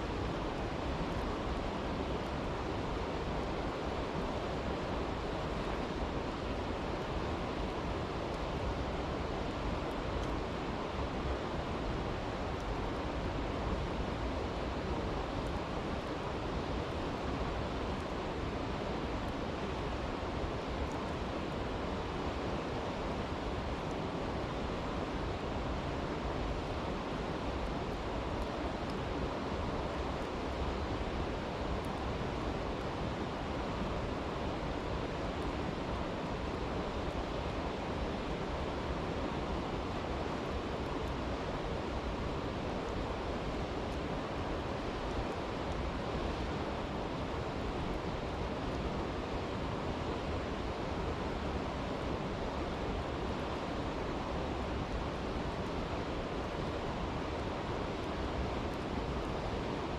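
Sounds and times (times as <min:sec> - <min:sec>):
campfire crackling: 0:04.2 - 0:51.7
stream rushing: 0:24.1 - 0:59.9.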